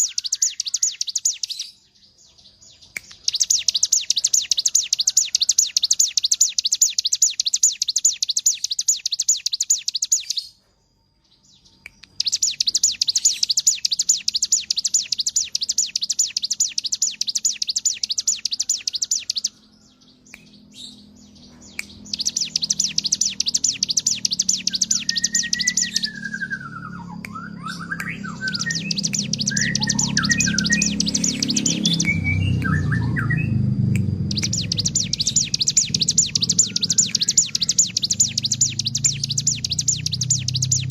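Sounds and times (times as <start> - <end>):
whistled bird chirps: 0.0 - 40.9
bird buzzy high trill: 21.9 - 40.9
low rumble: 25.4 - 40.8.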